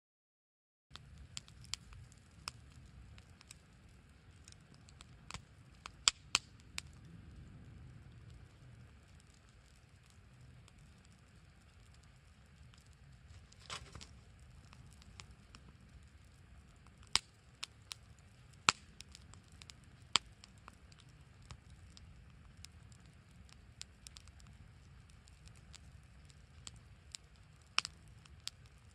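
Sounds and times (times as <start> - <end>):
campfire crackling: 0.9 - 28.9
loud fire pops: 0.9 - 28.9.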